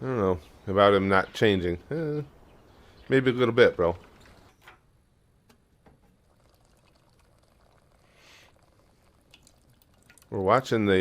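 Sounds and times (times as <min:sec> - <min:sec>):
soft hiss: 0:05.4 - 0:10.9.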